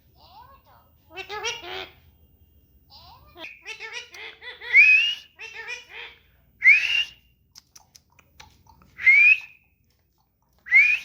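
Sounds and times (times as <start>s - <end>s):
parrot chattering: 1.1s - 2.0s, 3.1s - 4.8s, 5.4s - 6.2s.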